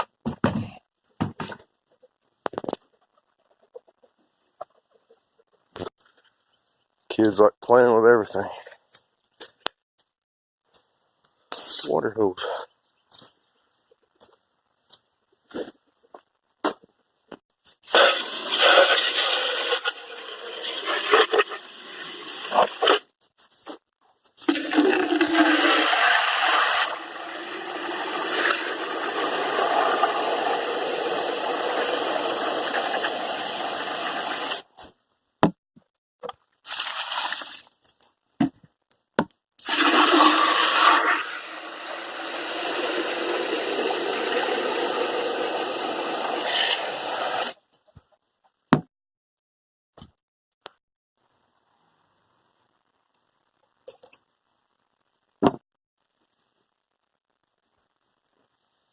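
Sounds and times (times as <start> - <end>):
garden hose spraying water: 17.8 - 23.0, 24.4 - 34.6, 36.6 - 37.7, 39.6 - 47.6.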